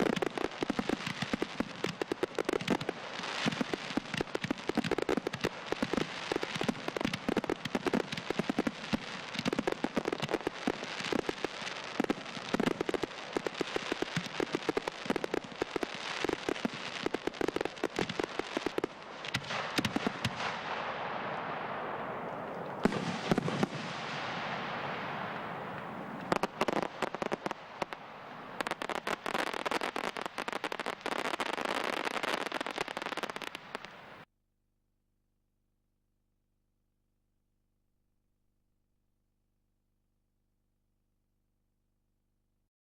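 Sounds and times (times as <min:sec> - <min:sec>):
crackling hiss of fireworks: 0:00.0 - 0:34.3
fireworks banging and crackling: 0:00.0 - 0:34.3.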